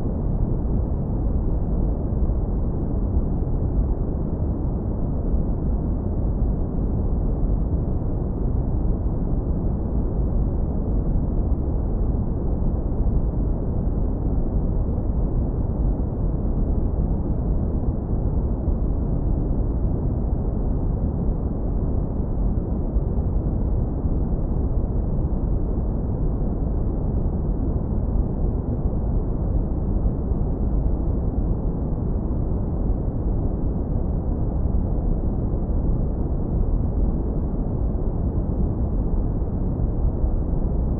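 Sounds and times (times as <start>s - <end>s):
deep brown noise rumble: 0.0s - 40.9s.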